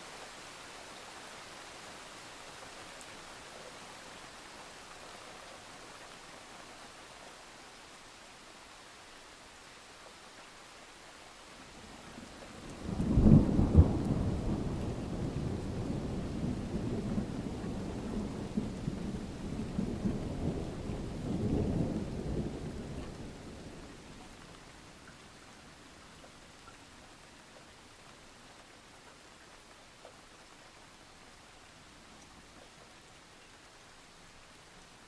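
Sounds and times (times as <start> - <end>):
light rain: 0.0 - 35.0
thunder crack and rumble: 12.7 - 23.8.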